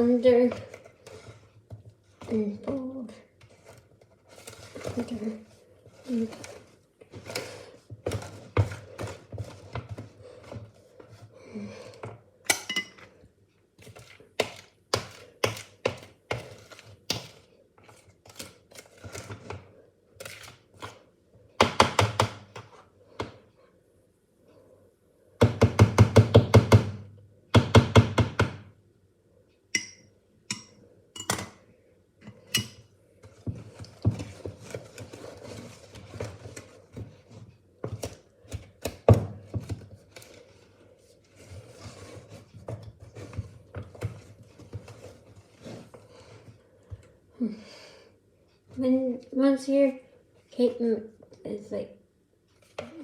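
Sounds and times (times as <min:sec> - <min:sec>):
spoon knocking and scraping bowl: 0:12.5 - 0:13.1.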